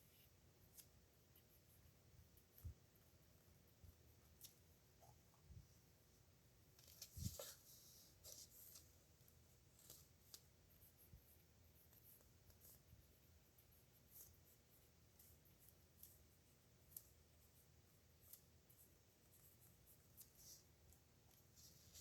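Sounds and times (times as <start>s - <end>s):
pen nib scratching on paper: 9.8s - 22.0s.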